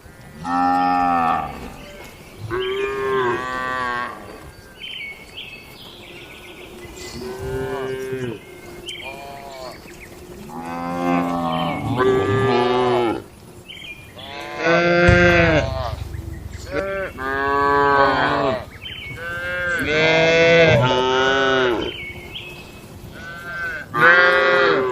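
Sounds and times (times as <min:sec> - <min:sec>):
cattle mooing: 0:07.0 - 0:09.8, 0:10.4 - 0:13.3, 0:23.1 - 0:24.9.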